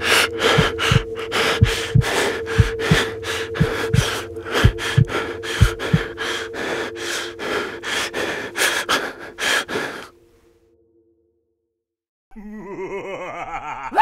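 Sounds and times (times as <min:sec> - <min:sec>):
heartbeat thumps: 0:00.0 - 0:08.8
breath-like rasps: 0:00.0 - 0:10.1
two-note drone: 0:00.0 - 0:11.3.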